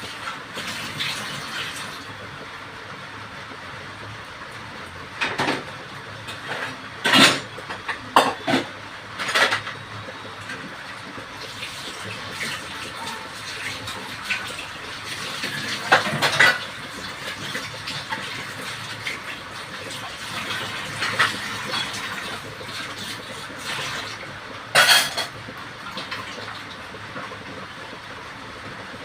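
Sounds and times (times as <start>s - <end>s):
metal utensils clattering on cookware: 6.4s - 9.8s, 15.4s - 16.8s, 24.7s - 25.4s.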